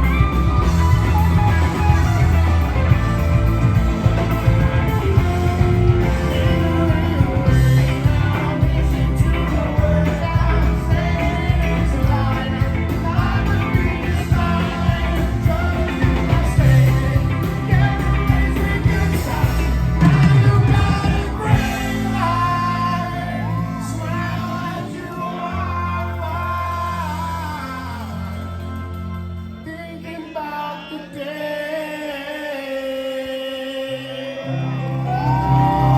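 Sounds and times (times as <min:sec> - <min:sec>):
live rock band playing: 0:00.0 - 0:31.4, 0:34.4 - 0:35.9
person singing: 0:03.7 - 0:28.9.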